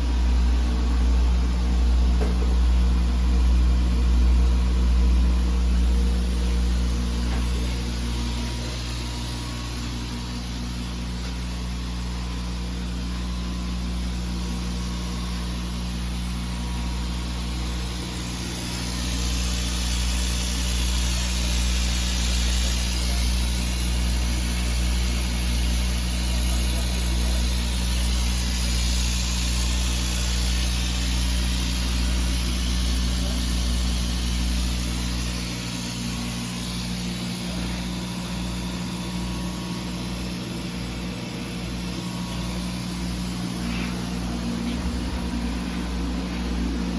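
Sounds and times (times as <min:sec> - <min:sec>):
laser cutter machine humming: 0:00.0 - 0:46.9
air hissing: 0:28.0 - 0:46.9.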